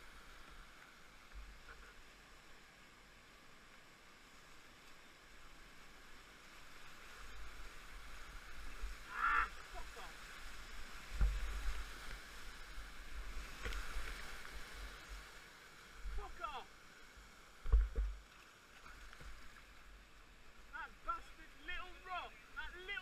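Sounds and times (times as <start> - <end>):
river rushing over rapids: 2.0 - 17.6
person shouting: 9.1 - 10.1, 16.2 - 16.6.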